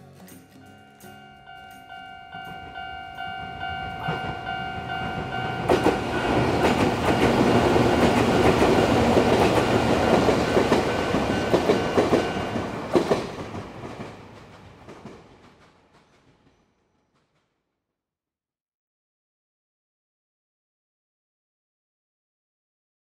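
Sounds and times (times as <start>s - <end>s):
steady ringing tone: 0.4s - 8.5s
train wheels clattering over rail joints: 4.9s - 17.4s.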